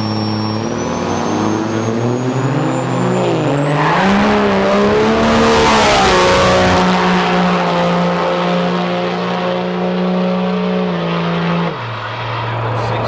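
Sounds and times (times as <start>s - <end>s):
high turbo whistle: 0.0s - 8.9s
truck engine running hard: 0.0s - 13.0s.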